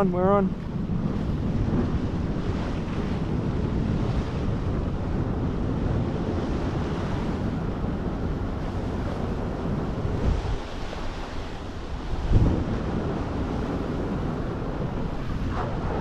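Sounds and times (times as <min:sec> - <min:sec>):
wind buffeting microphone: 0:00.0 - 0:16.0
water rushing and splashing: 0:08.2 - 0:16.0.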